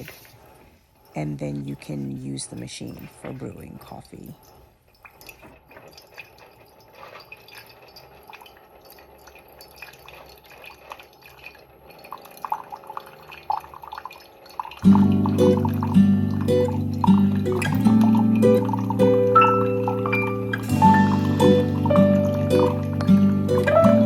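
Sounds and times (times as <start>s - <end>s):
hot water dripping into cup: 3.7s - 24.0s
music: 14.8s - 24.0s.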